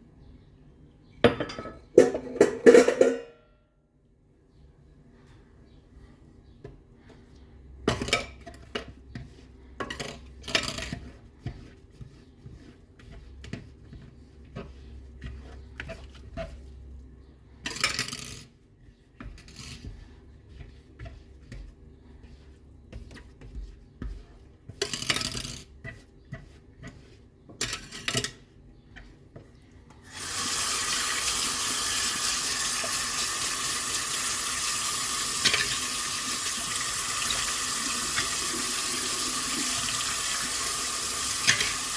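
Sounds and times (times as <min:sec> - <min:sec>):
dishes and cutlery clinking: 0:01.2 - 0:03.4, 0:41.4 - 0:41.8
tap water running: 0:30.0 - 0:41.9.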